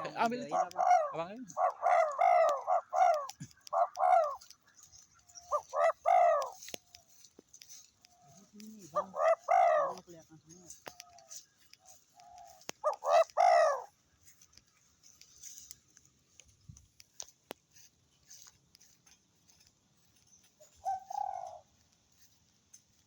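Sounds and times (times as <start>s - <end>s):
dove cooing: 0.0s - 7.2s, 7.9s - 14.0s, 20.6s - 22.3s
faint clicks: 0.3s - 23.0s.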